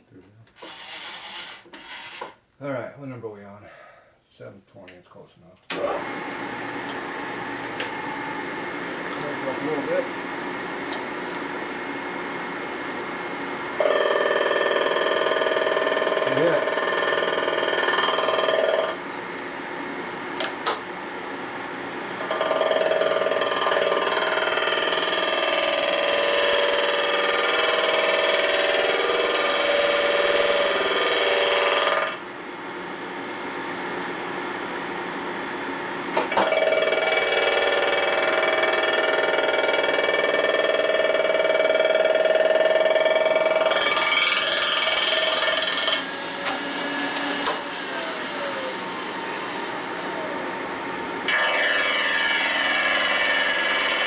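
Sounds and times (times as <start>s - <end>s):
cutter screeching on metal: 0.6s - 2.4s, 16.1s - 17.4s, 42.2s - 48.8s, 51.3s - 54.0s
machine running idle: 13.7s - 19.0s, 20.4s - 54.0s.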